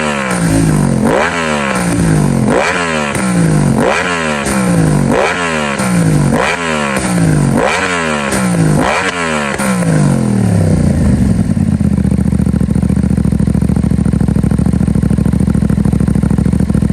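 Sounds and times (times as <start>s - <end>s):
motorcycle engine idling: 0.0s - 16.9s
motorcycle engine revving: 0.0s - 16.9s.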